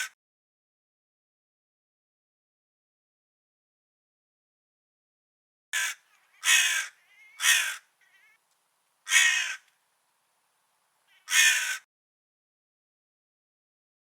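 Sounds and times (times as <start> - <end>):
crow cawing: 5.8 - 8.4, 9.0 - 9.7, 11.1 - 11.9.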